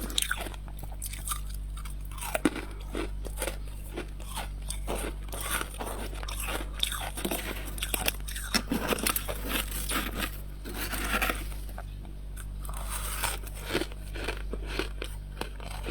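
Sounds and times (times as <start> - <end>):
frost being chewed: 0.0 - 15.9.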